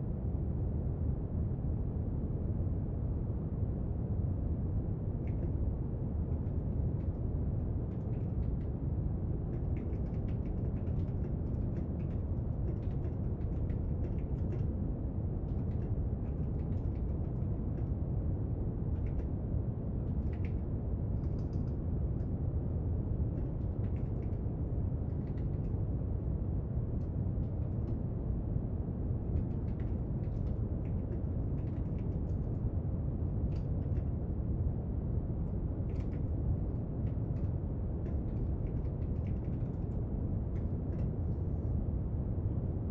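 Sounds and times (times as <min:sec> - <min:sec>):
small clicks and taps: 0:09.5 - 0:14.7, 0:29.3 - 0:32.6.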